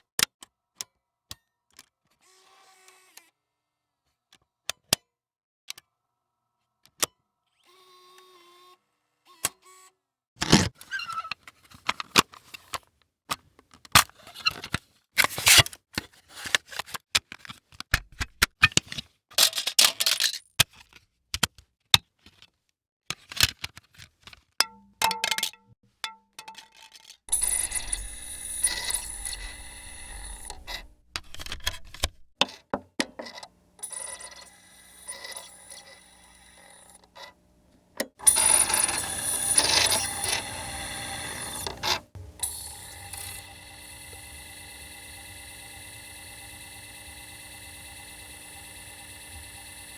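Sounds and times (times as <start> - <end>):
mechanical noise with high whine: 27.3 - 32.3
short mechanical clicks: 27.3 - 32.4, 38.0 - 49.9
small mechanical clatters: 27.3 - 37.3, 38.0 - 43.6.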